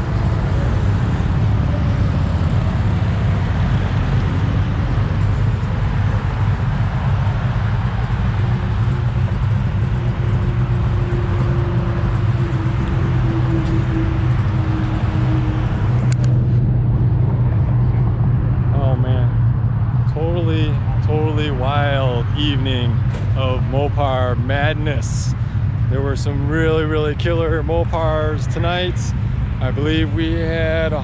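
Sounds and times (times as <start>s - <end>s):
car engine running: 0.0s - 31.0s.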